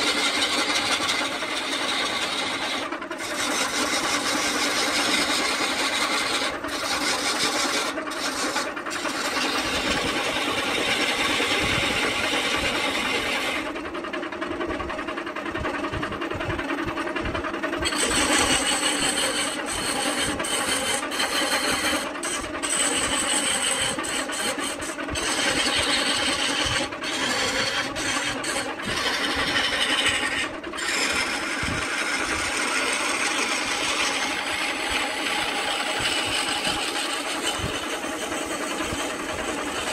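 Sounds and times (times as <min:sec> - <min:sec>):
lathe motor hum: 0:00.0 - 0:39.9.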